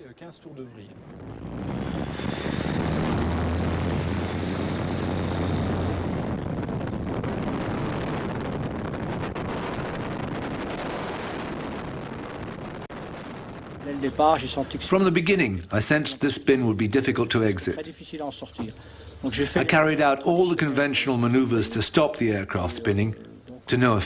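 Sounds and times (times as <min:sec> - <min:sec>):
light aircraft engine drone: 0:00.9 - 0:08.5
rushing air: 0:01.0 - 0:14.9.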